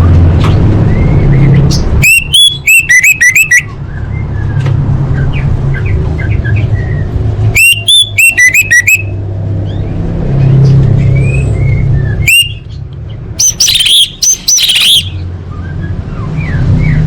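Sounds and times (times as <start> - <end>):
thrush whistled song: 0.9 - 4.6, 6.4 - 9.2, 11.1 - 12.8, 13.4 - 17.0
soft bird chirps: 0.9 - 17.0.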